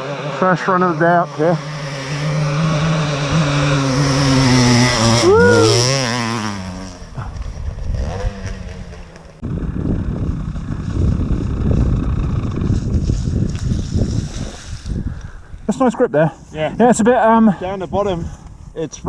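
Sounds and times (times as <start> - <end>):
motorcycle engine revving: 0.0 - 15.0
rough low rumbling noise: 0.0 - 16.1.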